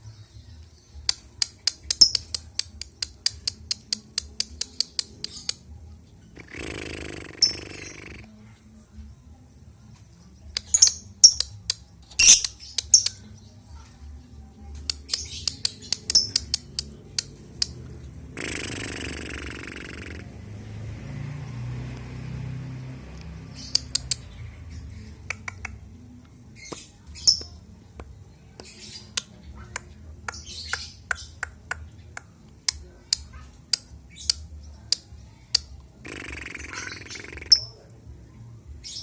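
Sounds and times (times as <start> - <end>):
bird squawks: 6.4 - 8.2, 12.2 - 13.0, 36.0 - 37.8
lovebird chirping: 6.6 - 8.2, 10.6 - 11.5, 12.1 - 13.3, 15.1 - 17.3, 26.6 - 27.6.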